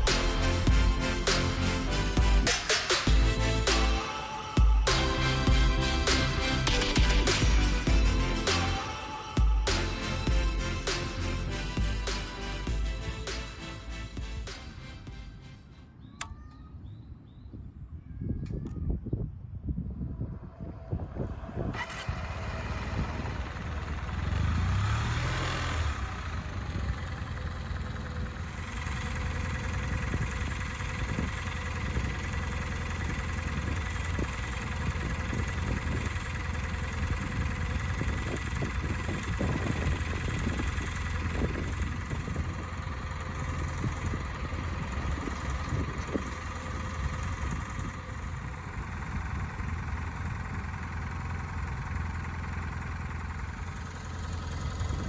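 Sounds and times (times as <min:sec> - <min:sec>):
motorcycle engine idling: 0:00.0 - 0:04.0, 0:19.8 - 0:55.0.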